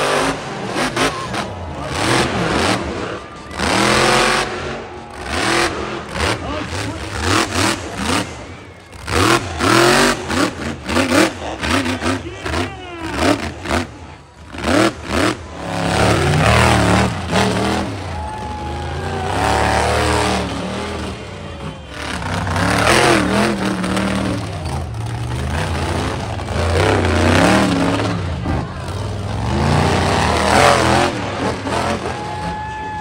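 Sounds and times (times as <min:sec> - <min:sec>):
monster truck engine revving: 0:00.0 - 0:33.0.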